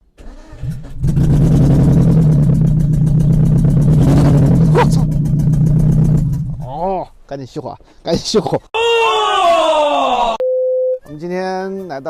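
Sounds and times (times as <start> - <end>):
minivan engine starting and running: 0.0 - 6.7.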